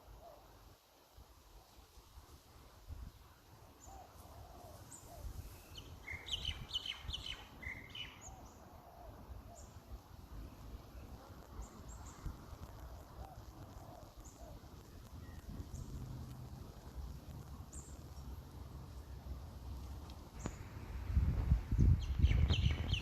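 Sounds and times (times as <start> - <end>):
birds twittering: 3.8 - 9.9, 21.8 - 23.0
low bird calls: 11.0 - 16.0, 21.8 - 23.0.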